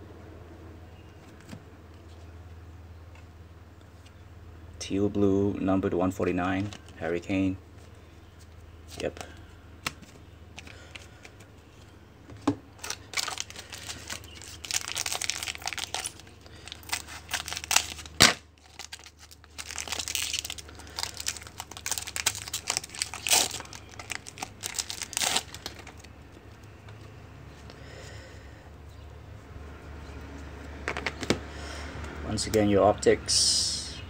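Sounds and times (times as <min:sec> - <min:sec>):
cards rustling: 0:07.8 - 0:27.8
wrapper crinkling and tearing: 0:12.8 - 0:26.1.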